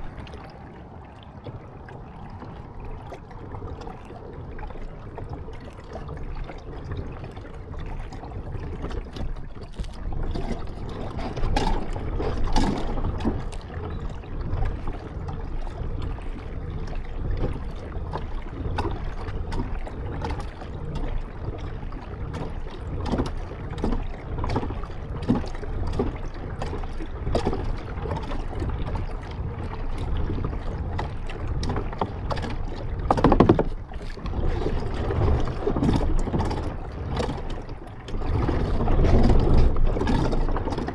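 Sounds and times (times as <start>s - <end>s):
paddle splashes: 0.0s - 40.9s.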